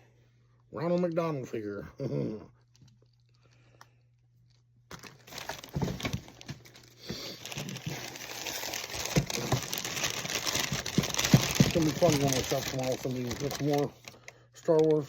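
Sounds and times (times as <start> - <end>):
wrapping crinkling and rustling: 4.4 - 15.0.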